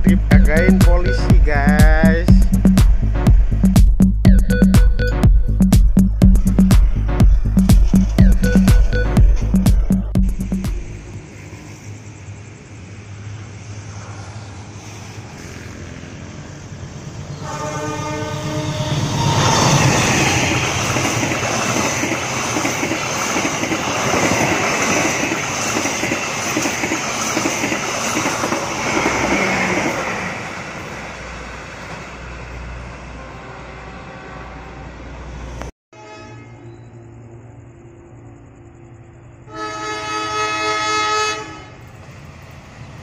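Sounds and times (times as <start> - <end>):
train rushing past: 0.0 - 35.7, 37.1 - 43.0
train horn: 17.3 - 20.1, 33.1 - 35.1, 35.9 - 37.0, 39.4 - 41.9.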